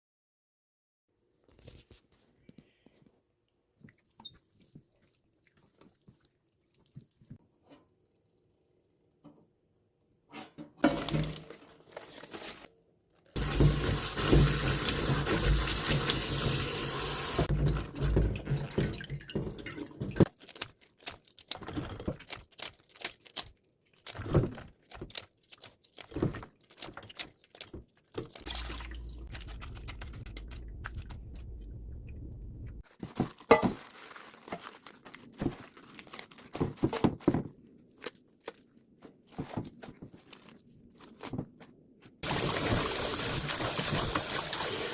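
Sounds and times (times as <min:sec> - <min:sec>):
low steady hum: 0:28.5 - 0:32.8.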